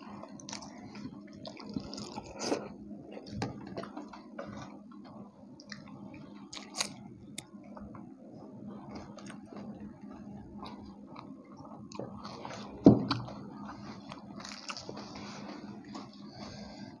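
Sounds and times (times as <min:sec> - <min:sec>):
people chewing food: 0:00.0 - 0:17.0
small crunches: 0:14.0 - 0:15.1.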